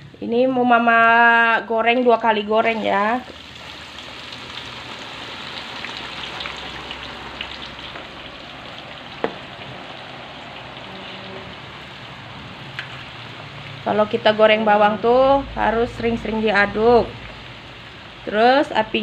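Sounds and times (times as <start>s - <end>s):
shallots sizzling in hot oil: 2.0s - 19.0s.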